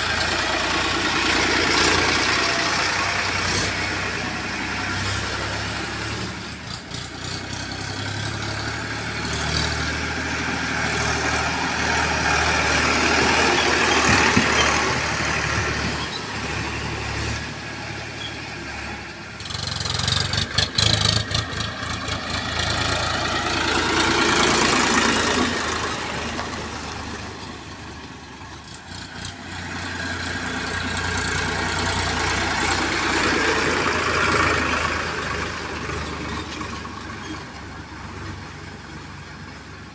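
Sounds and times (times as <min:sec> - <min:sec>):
heavy diesel engine humming: 0:00.0 - 0:39.9.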